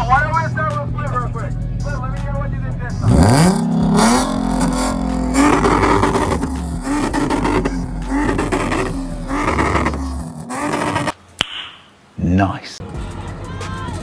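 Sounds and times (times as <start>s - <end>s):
car engine revving: 1.1s - 11.2s.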